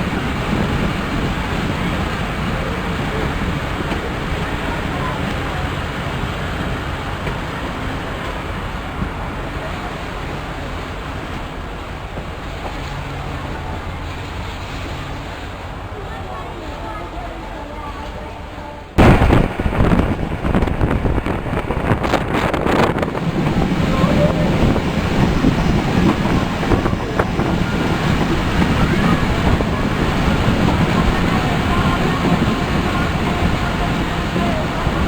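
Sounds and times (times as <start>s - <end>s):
wind buffeting microphone: 0.0s - 10.5s, 19.0s - 35.0s
passenger train on track: 0.0s - 35.0s.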